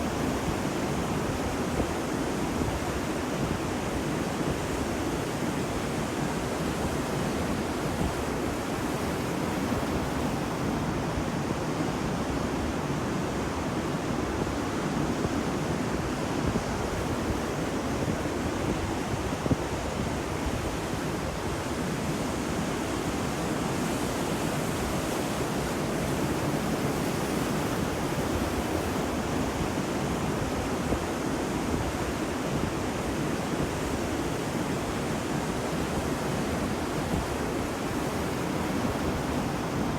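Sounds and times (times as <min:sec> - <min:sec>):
sea surf breaking on beach: 0:15.5 - 0:39.9.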